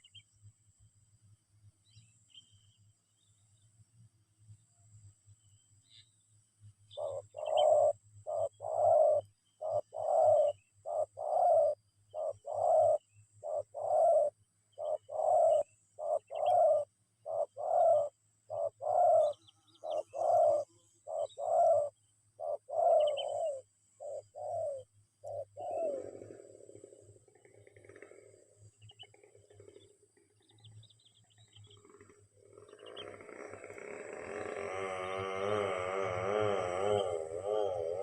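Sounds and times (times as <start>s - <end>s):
dove cooing: 6.9s - 29.1s, 32.4s - 38.0s.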